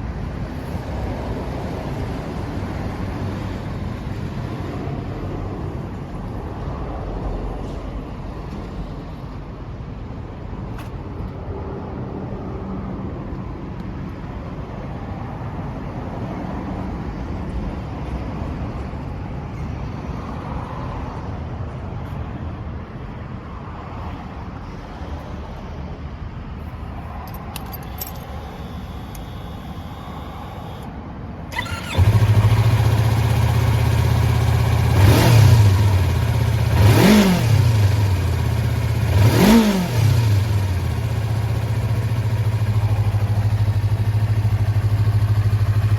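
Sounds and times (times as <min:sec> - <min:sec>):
motorcycle engine idling and revving: 0:26.8 - 0:30.9, 0:31.5 - 0:45.9.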